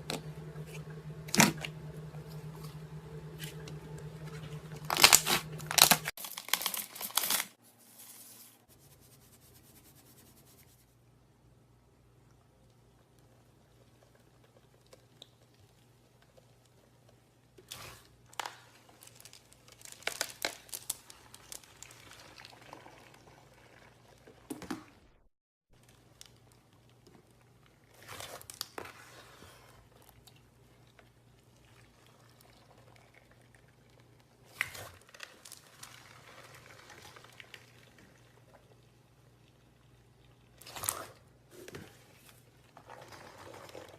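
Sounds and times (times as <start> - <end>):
low hum: 0.0 - 6.1
crinkling handling noises: 0.0 - 8.6, 17.6 - 22.9.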